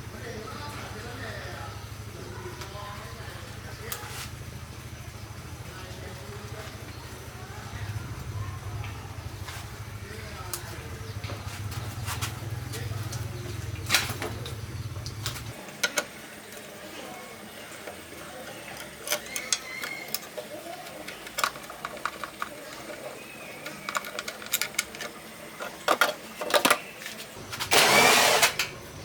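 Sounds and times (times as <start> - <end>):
tools and metal parts clicking: 13.0 - 28.8.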